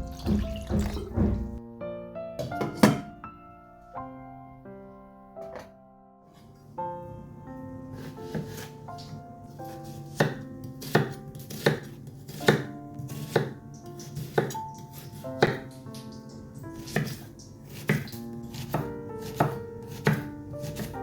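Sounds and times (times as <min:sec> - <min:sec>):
soft background music: 0:00.0 - 0:21.0
knife chopping on cutting board: 0:00.1 - 0:01.6, 0:02.4 - 0:03.1, 0:08.0 - 0:15.8, 0:16.8 - 0:21.0.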